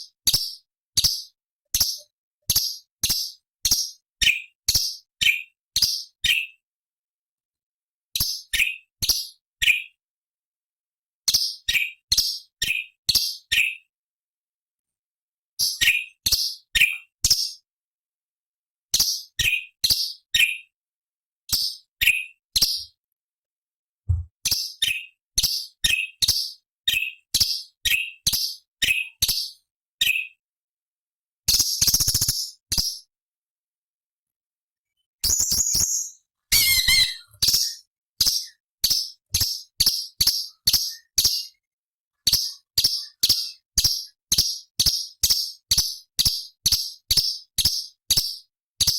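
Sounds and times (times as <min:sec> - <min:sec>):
bird chirping: 0:21.5 - 0:23.0, 0:31.5 - 0:33.1, 0:34.9 - 0:48.9
bird calling: 0:36.5 - 0:37.8.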